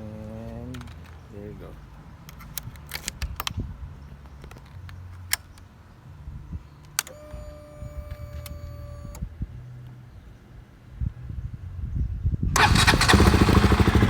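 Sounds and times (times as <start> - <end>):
ignition key click: 6.9 - 9.3
fuel pump electric buzz: 7.0 - 9.3, 12.6 - 14.0.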